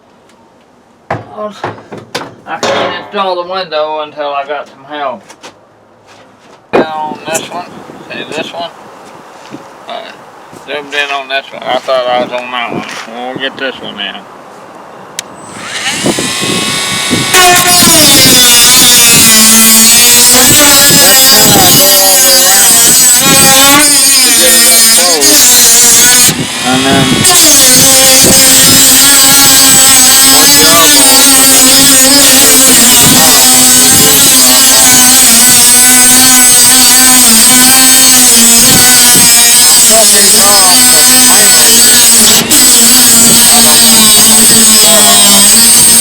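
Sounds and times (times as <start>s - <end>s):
rotary tool whining: 15.4s - 46.0s.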